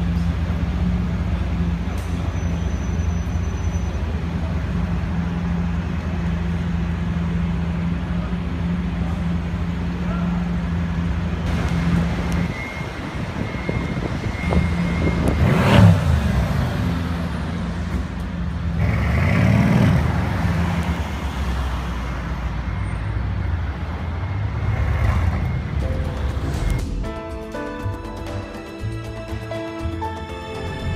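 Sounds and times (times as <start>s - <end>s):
street traffic: 0.0s - 30.9s
car engine revving: 4.0s - 26.9s.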